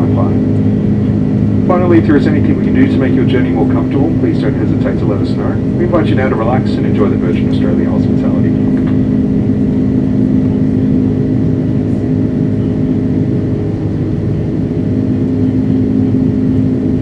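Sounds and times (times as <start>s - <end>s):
jet engine cabin drone: 0.0s - 17.0s.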